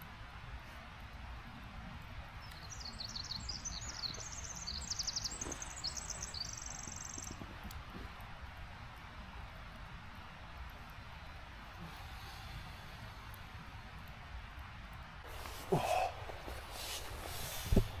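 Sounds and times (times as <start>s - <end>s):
low outdoor rumble: 0.0s - 18.0s
songbird chirps and trills: 2.4s - 7.5s.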